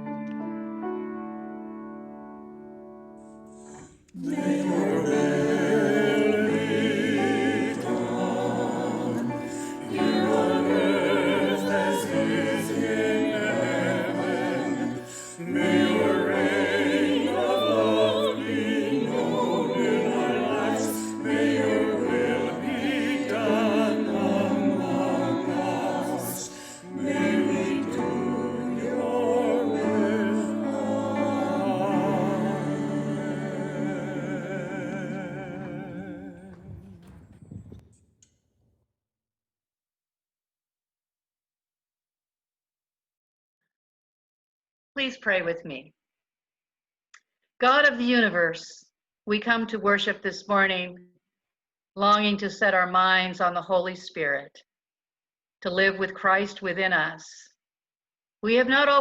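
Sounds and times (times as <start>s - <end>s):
voices singing sacred music: 3.6s - 37.0s.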